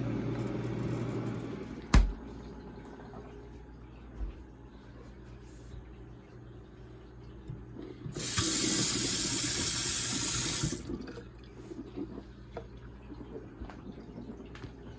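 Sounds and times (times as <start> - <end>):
water running from tap: 8.1 - 11.3.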